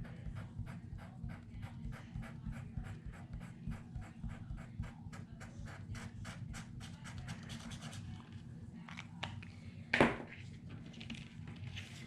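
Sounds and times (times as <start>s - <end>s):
pen scratching on paper: 0.0s - 8.0s.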